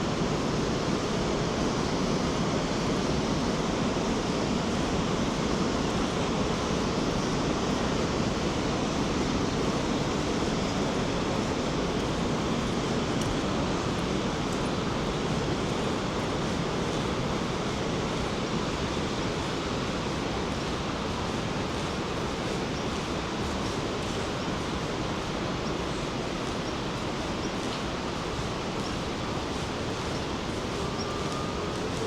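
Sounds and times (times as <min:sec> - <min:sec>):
waterfall roaring: 0:00.0 - 0:32.0.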